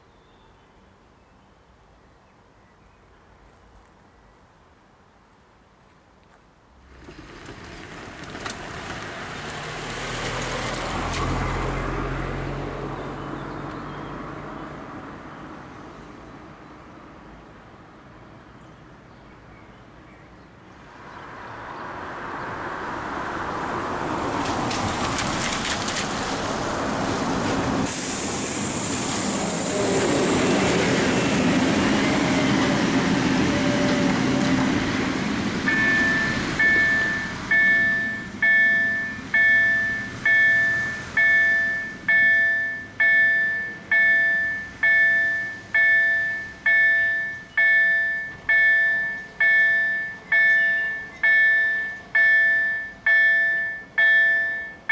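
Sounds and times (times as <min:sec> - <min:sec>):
train rumbling past: 0:06.8 - 0:15.6, 0:20.8 - 0:53.6
crossing warning bell ringing: 0:35.7 - 0:54.9.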